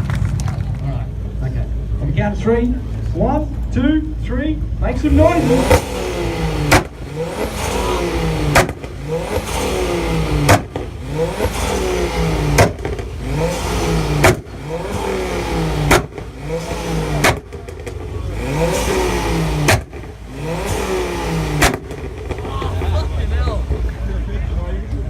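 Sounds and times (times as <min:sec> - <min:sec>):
car engine revving hard: 0:04.9 - 0:23.6
exhaust bang: 0:04.9 - 0:23.9.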